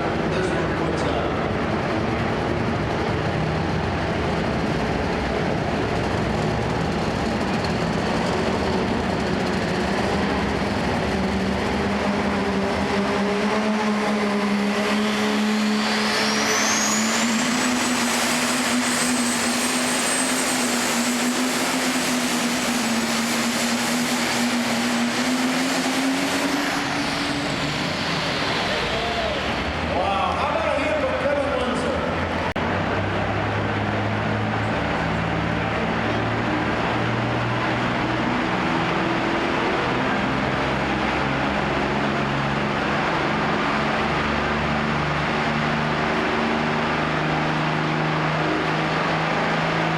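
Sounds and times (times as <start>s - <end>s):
tractor engine running hard: 0.0s - 49.9s
turbo whine: 7.4s - 29.9s.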